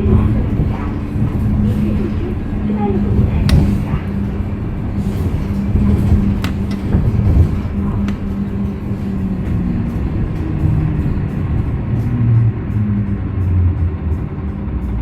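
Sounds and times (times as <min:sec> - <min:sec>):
bus engine running: 0:00.0 - 0:15.0
cabin rattle clicks: 0:03.2 - 0:09.6.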